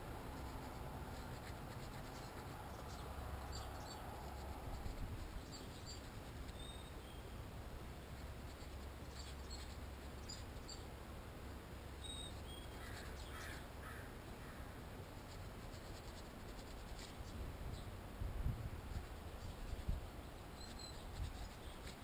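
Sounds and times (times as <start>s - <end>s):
scratching and handling noise: 0.0s - 6.9s, 15.0s - 17.4s, 18.8s - 22.0s
steady low rumble: 0.0s - 12.0s.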